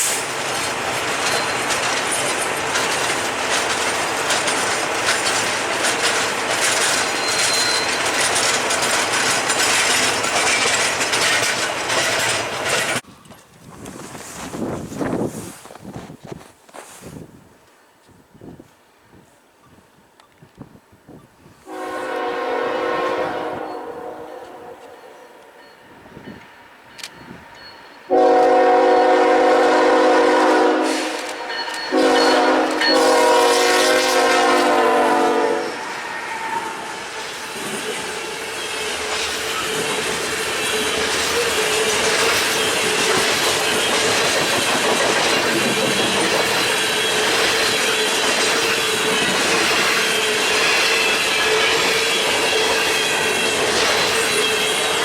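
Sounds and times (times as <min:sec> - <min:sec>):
train wheels on rails: 0:00.0 - 0:55.0
wheels squealing: 0:00.5 - 0:13.0
locomotive horn blasts: 0:21.7 - 0:25.5, 0:28.1 - 0:36.8.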